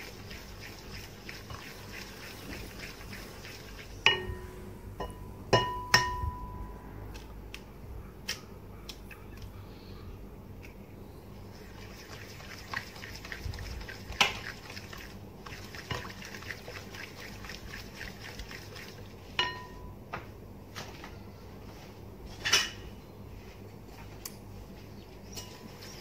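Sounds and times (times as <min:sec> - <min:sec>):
utensil beating batter in bowl: 0:00.0 - 0:04.5, 0:11.5 - 0:19.7.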